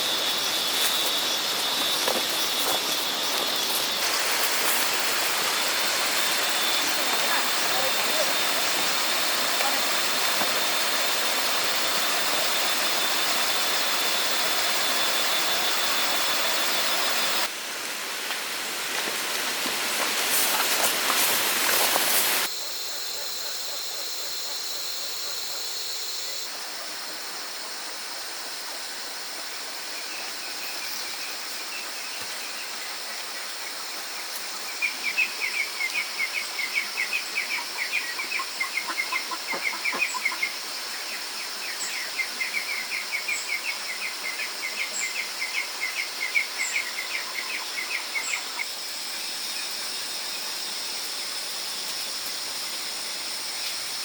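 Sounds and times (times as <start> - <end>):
steady high hiss: 0.0 - 22.7.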